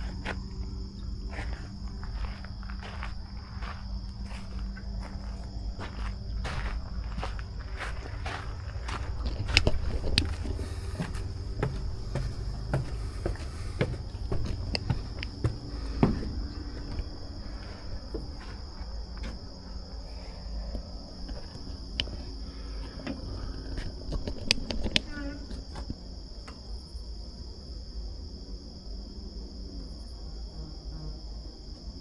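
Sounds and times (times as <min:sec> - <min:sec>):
footsteps on a trail: 0:00.0 - 0:25.0
crickets chirping: 0:00.0 - 0:32.0.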